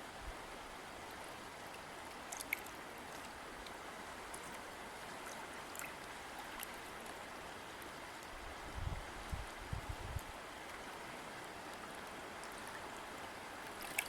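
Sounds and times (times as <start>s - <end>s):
river water flowing: 0.0s - 14.0s
small water splashes: 1.7s - 8.4s, 10.6s - 14.0s.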